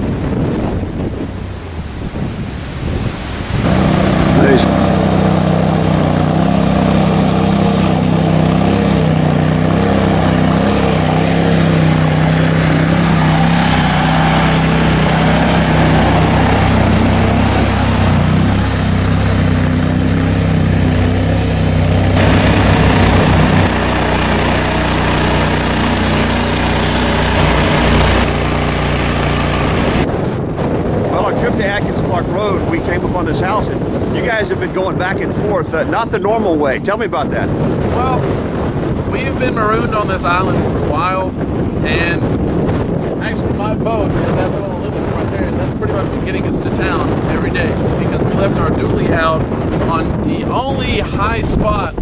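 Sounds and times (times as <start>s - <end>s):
vehicle engine droning: 3.6s - 30.1s.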